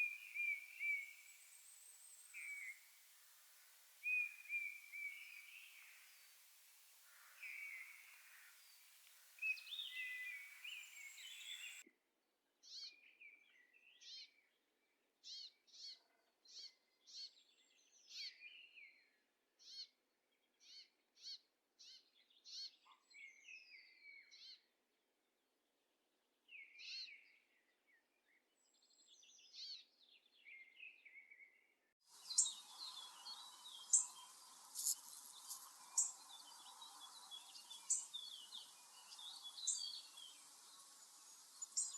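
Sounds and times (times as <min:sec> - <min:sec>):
background hiss: 0:00.0 - 0:11.8, 0:32.0 - 0:41.9
songbirds singing: 0:00.0 - 0:11.8, 0:28.7 - 0:41.9
sharp high ticking calls: 0:32.2 - 0:41.9.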